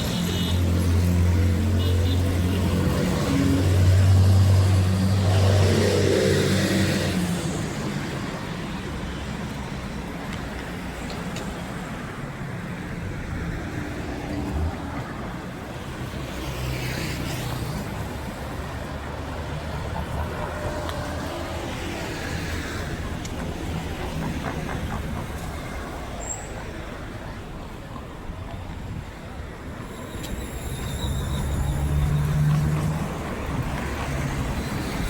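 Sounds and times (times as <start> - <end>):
steady traffic noise: 0.0 - 35.0.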